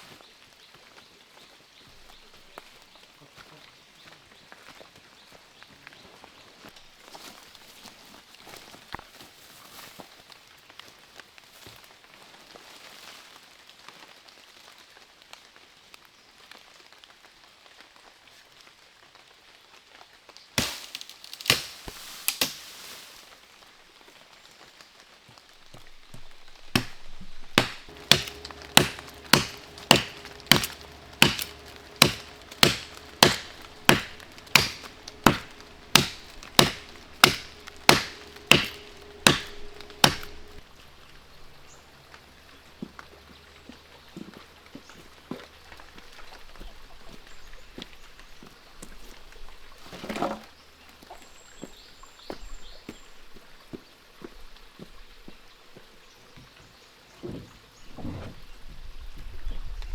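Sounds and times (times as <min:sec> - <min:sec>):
blade chopping tree: 0:20.6 - 0:22.7, 0:26.2 - 0:40.7.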